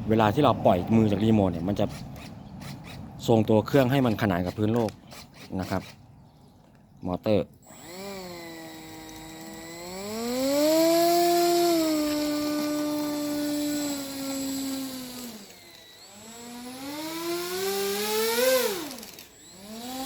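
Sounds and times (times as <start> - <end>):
model plane electric motor whine: 7.6 - 20.0.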